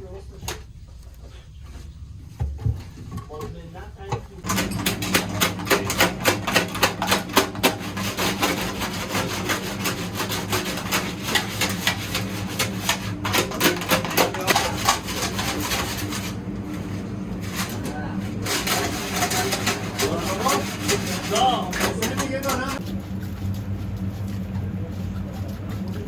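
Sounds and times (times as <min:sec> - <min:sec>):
scrubbing rust rasping strokes: 0:05.3 - 0:26.0
low hum: 0:22.7 - 0:26.0.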